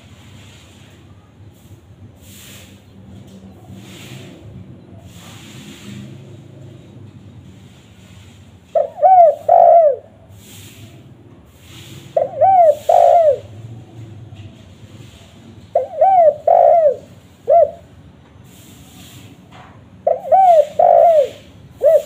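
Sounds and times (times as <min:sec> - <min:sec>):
dove cooing: 0:08.7 - 0:10.8, 0:12.0 - 0:14.0, 0:15.7 - 0:17.9, 0:20.0 - 0:22.0.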